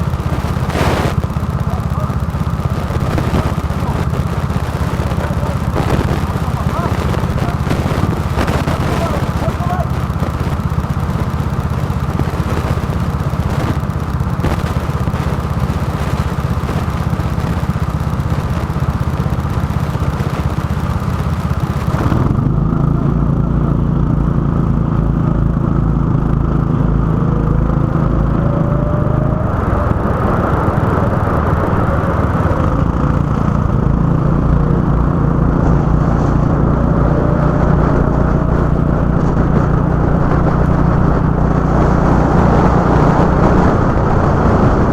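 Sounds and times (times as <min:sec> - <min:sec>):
heavy rushing hiss: 0:00.0 - 0:22.2
go-kart engine running: 0:00.0 - 0:44.9.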